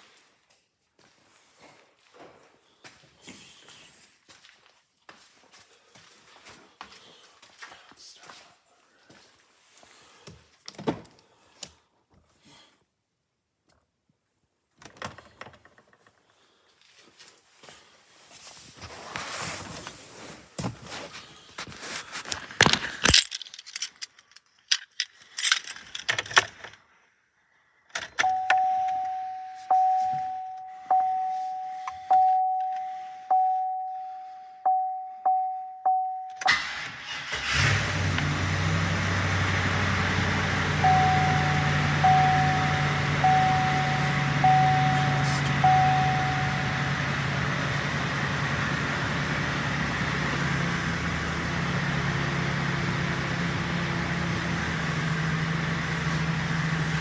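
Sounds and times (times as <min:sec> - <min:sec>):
keys jangling: 0:22.8 - 0:26.4
warning chime dinging: 0:28.2 - 0:36.6, 0:40.7 - 0:49.2
truck engine starting and idling: 0:36.4 - 0:57.0.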